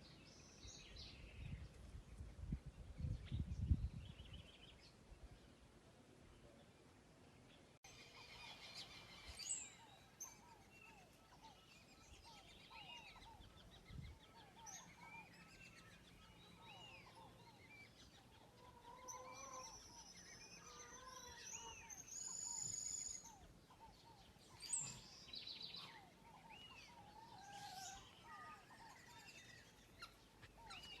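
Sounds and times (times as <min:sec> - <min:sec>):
birds chirping: 0:06.3 - 0:31.0.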